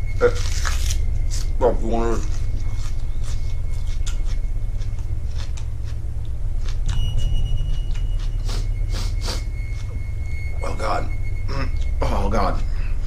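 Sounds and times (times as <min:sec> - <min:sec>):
steady low rumble: 0:00.0 - 0:13.0
crisp crunches of chewing onion: 0:00.2 - 0:07.0.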